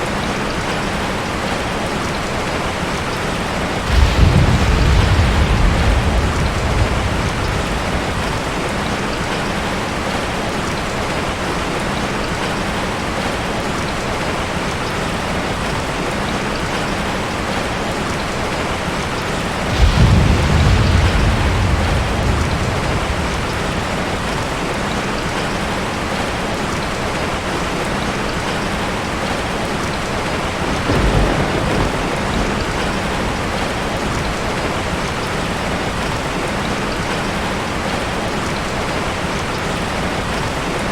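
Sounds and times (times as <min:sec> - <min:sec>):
heavy rain falling: 0:00.0 - 0:40.9
thunder rumbling: 0:03.4 - 0:11.0, 0:16.8 - 0:36.1.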